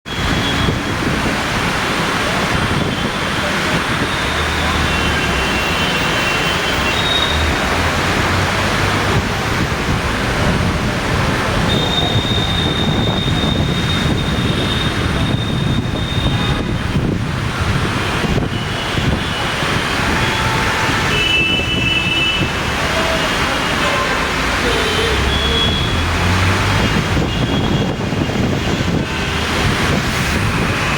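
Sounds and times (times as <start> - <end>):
strong wind buffeting microphone: 0.2 - 4.2, 7.8 - 22.8, 25.7 - 30.9.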